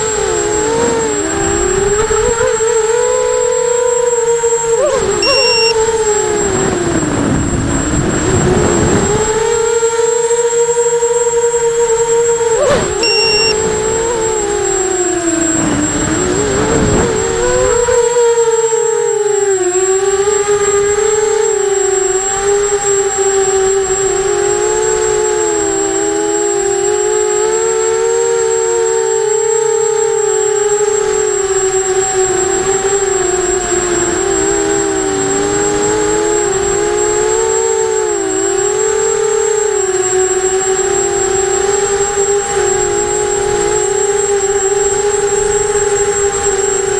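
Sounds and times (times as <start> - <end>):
drone motors whining: 0.0 - 46.9
high beep: 5.2 - 5.8, 13.0 - 13.6
thin high-pitched tone: 5.2 - 5.8, 13.0 - 13.6.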